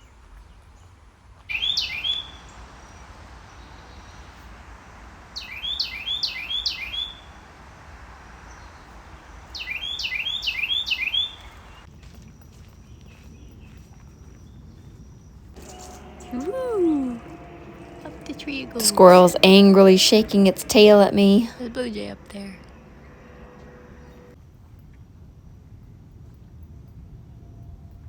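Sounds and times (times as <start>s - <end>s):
songbird whistling down-slurred notes: 1.5s - 3.0s, 5.4s - 7.4s, 9.6s - 11.8s.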